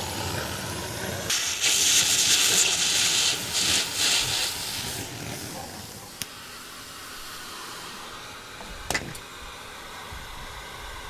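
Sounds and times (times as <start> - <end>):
steady hiss: 0.0 - 8.5.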